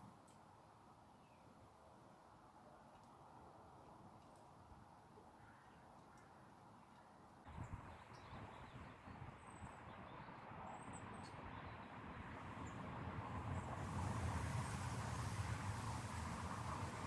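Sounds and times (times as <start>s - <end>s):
low rumble and hiss: 10.5s - 17.0s.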